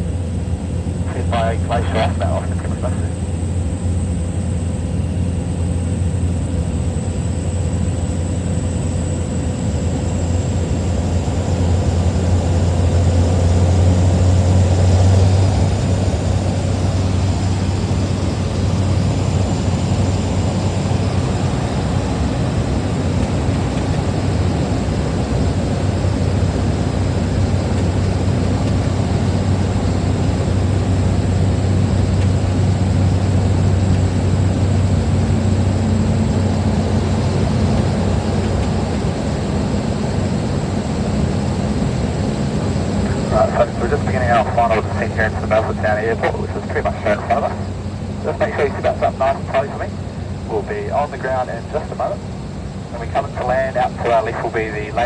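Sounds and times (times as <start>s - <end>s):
propeller engine droning: 0.0s - 55.0s.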